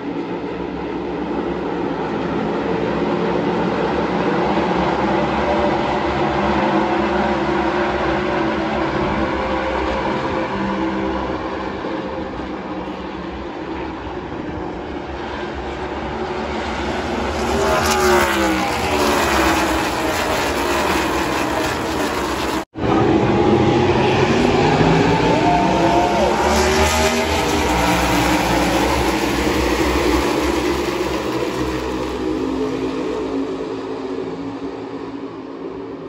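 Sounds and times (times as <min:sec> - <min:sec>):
race car engines passing: 0:00.0 - 0:36.0.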